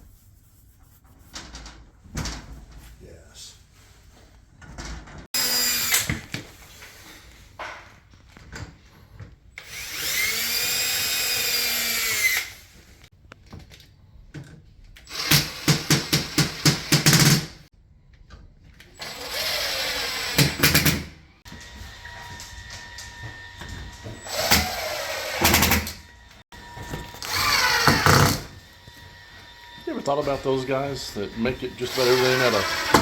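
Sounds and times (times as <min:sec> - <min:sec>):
power drill running: 0:05.4 - 0:06.2, 0:09.6 - 0:12.8, 0:15.0 - 0:17.4, 0:19.0 - 0:33.0.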